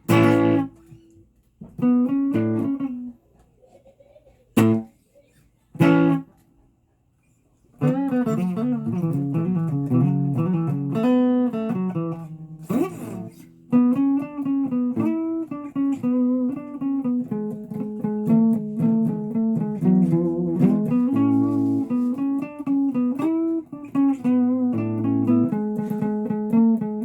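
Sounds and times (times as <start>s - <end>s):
guitar picking melody: 0.0s - 3.2s, 4.6s - 4.9s, 5.8s - 6.4s, 7.8s - 27.0s
scrape on guitar: 12.6s - 13.6s, 19.8s - 23.2s.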